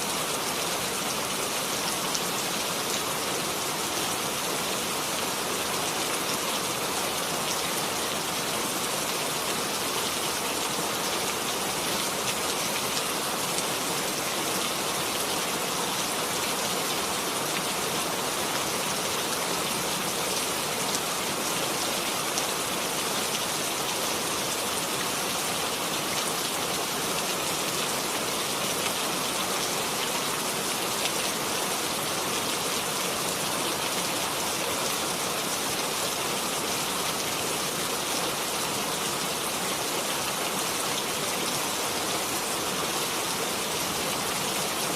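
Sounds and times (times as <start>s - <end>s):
steady rain falling: 0.0s - 44.9s.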